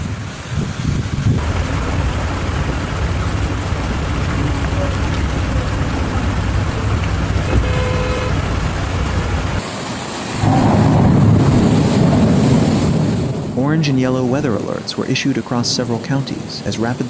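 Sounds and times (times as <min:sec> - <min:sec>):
loud low rumble: 0:01.4 - 0:09.6
passing traffic: 0:01.4 - 0:09.7
heavy rain: 0:01.4 - 0:13.6
car horn toot: 0:06.3 - 0:09.6.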